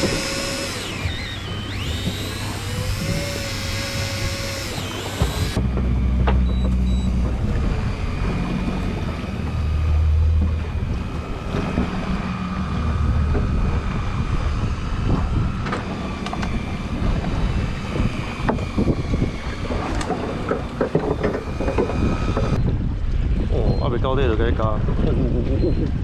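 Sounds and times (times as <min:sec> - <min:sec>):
boat engine running: 0:00.0 - 0:26.0
wind buffeting the microphone: 0:07.1 - 0:26.0.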